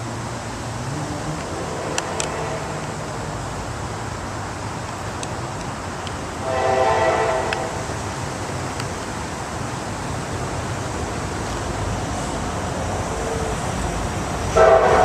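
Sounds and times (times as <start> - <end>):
diesel locomotive running: 0.0 - 15.0
locomotive horn: 1.5 - 3.1, 6.4 - 7.9, 14.5 - 15.0.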